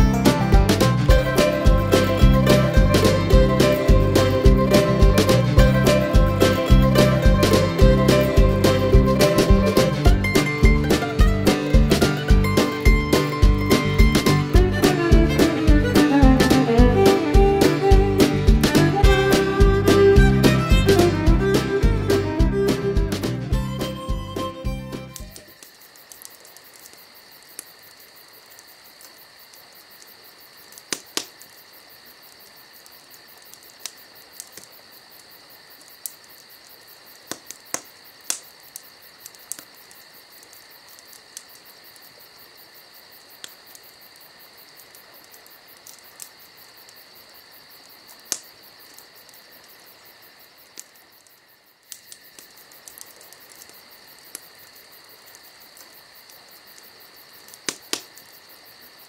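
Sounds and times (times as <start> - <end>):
crickets trilling: 0.0 - 59.0
wood fire popping and crackling: 0.0 - 59.0.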